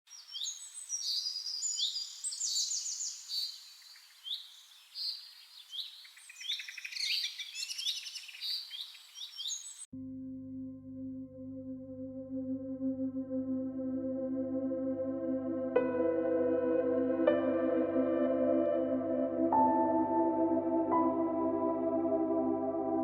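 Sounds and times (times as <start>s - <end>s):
songbirds singing: 0.1s - 9.9s.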